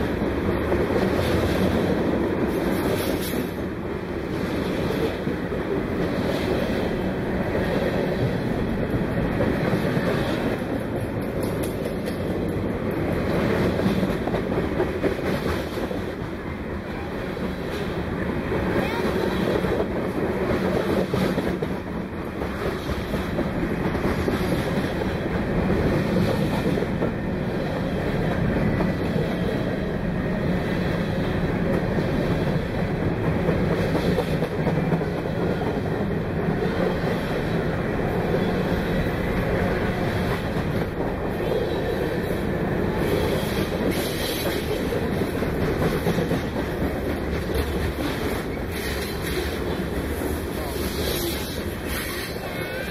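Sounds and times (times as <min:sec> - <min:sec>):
freight train rumbling past: 0:00.0 - 0:52.9
wheels clacking over rail joints: 0:04.3 - 0:16.4, 0:30.4 - 0:52.5.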